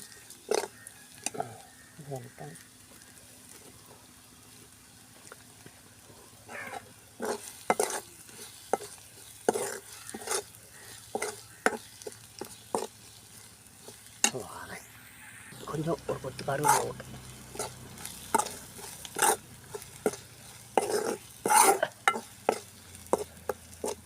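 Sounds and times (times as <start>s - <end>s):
spatula scraping pan: 0.0s - 1.3s, 6.6s - 14.3s, 15.9s - 24.0s
food sizzling in a pan: 0.0s - 24.0s.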